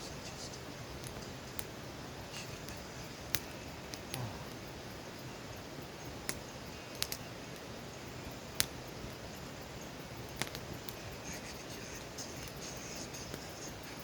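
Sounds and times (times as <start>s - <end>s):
campfire hissing: 0.0s - 14.0s
fire crackles and pops: 0.0s - 14.0s.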